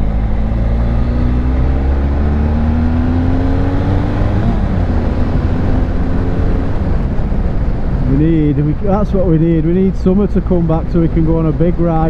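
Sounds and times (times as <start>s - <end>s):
motorcycle engine accelerating: 0.0s - 8.9s
wind rumble on microphone: 0.0s - 12.0s.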